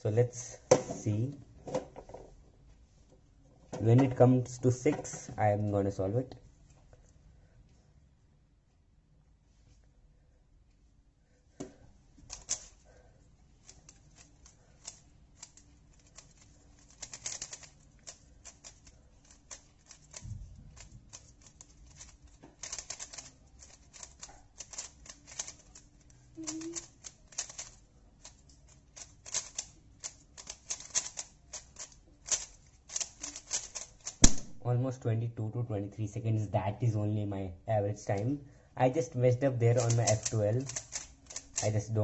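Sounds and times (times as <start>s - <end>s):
speed cube clicking: 12.3s - 12.8s, 13.6s - 34.4s, 39.7s - 41.9s.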